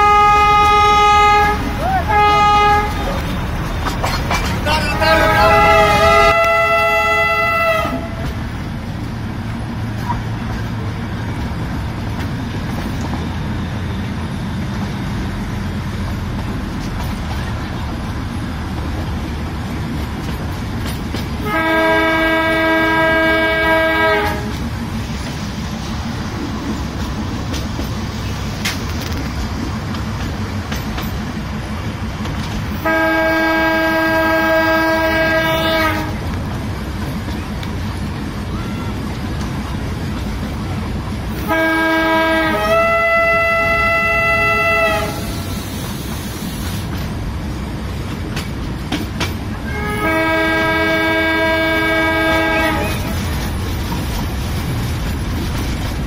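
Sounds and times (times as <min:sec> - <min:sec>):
train horn blasts: 0:00.0 - 0:03.2, 0:04.6 - 0:08.4, 0:21.4 - 0:24.6, 0:32.8 - 0:36.3, 0:41.3 - 0:45.7, 0:49.6 - 0:53.2
train wheels rumbling and rattling: 0:00.0 - 0:56.0.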